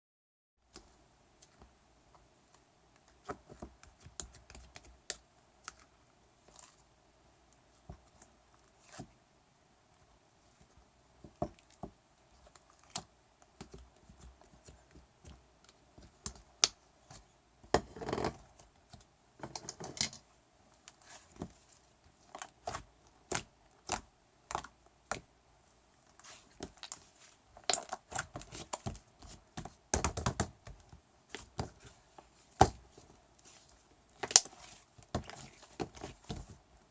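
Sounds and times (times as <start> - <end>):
slime clicking and squelching: 26.1 - 31.9, 33.4 - 36.5.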